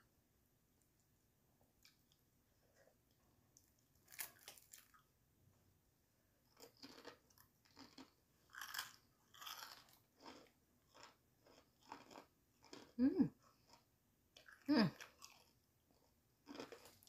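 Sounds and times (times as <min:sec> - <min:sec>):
fried chicken crunching: 0:04.0 - 0:05.0, 0:06.6 - 0:12.9, 0:14.4 - 0:15.5, 0:16.4 - 0:17.0.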